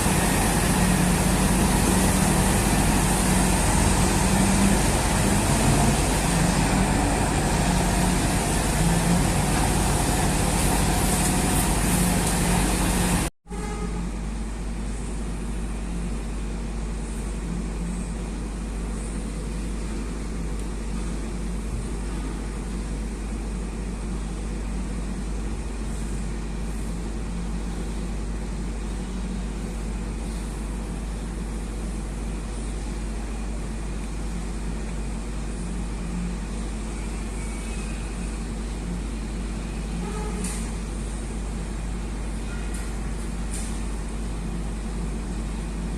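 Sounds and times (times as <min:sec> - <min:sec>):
diesel truck engine running: 0:00.0 - 0:13.3.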